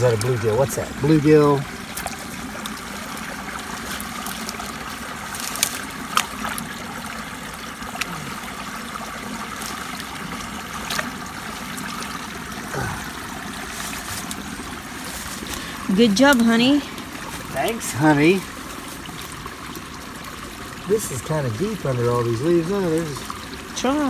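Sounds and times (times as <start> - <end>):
water trickling through spillway: 0.0 - 24.0.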